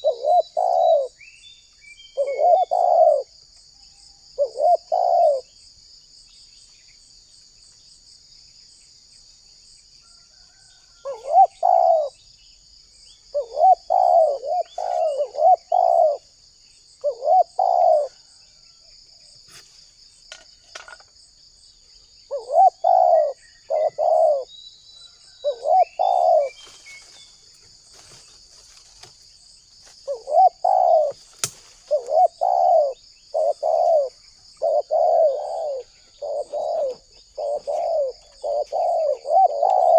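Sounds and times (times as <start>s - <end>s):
dove cooing: 0.0s - 1.2s, 2.1s - 3.4s, 4.4s - 5.5s, 11.0s - 12.2s, 13.3s - 16.3s, 17.0s - 18.4s, 22.3s - 24.5s, 25.4s - 26.8s, 30.0s - 39.9s.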